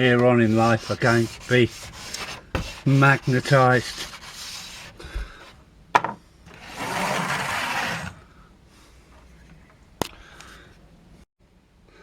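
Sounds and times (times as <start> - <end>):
rubbing scraping sound: 0.0 - 5.0, 6.6 - 8.2.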